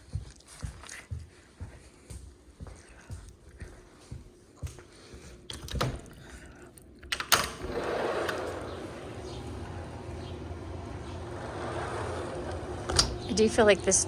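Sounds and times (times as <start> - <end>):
door clicks: 5.5 - 11.6, 12.2 - 13.3
door banging: 7.2 - 13.4
open air rushing: 7.6 - 14.0.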